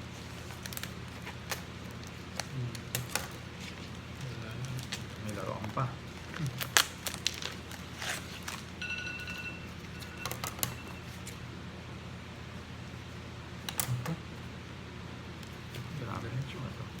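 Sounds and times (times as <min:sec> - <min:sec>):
packaging crinkling: 0:00.0 - 0:08.8
faint high tone: 0:08.8 - 0:11.3.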